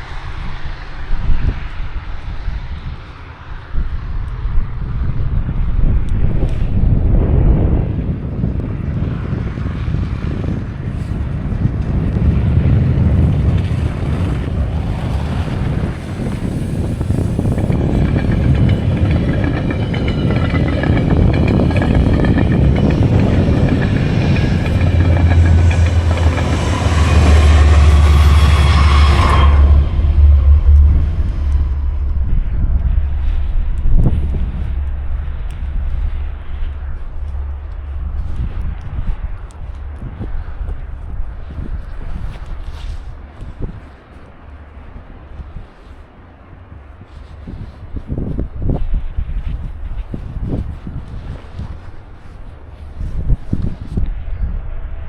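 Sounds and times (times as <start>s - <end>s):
wind buffeting microphone: 0.0s - 55.0s
motor vehicle passing: 11.6s - 42.8s.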